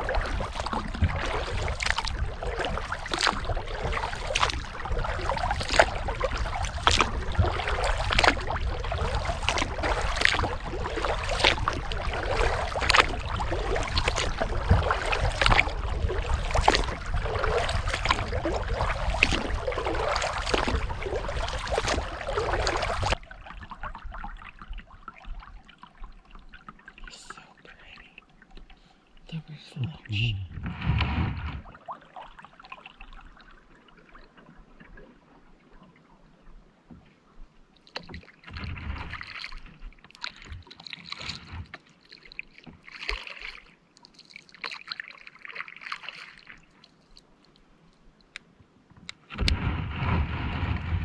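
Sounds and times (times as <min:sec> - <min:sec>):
paddle splashing in water: 0:00.0 - 0:29.5, 0:30.5 - 0:51.0
water trickling off paddle: 0:00.0 - 0:29.8, 0:30.5 - 0:51.0
low rumble: 0:29.9 - 0:31.7.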